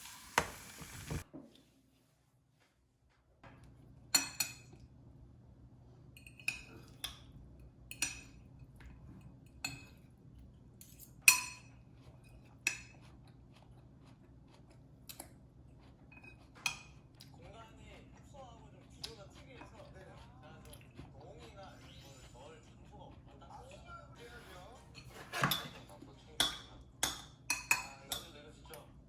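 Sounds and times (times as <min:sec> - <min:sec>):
metal utensils clinking on dishes: 0:10.8 - 0:13.0, 0:24.4 - 0:28.9.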